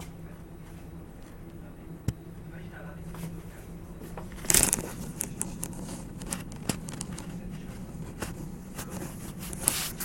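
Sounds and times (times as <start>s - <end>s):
tram hum: 0.0s - 10.0s
clicks and rattles: 4.3s - 7.6s.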